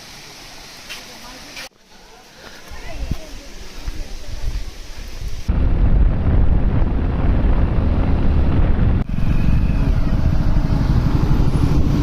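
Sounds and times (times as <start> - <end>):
wind buffeting the microphone: 2.8 - 12.0.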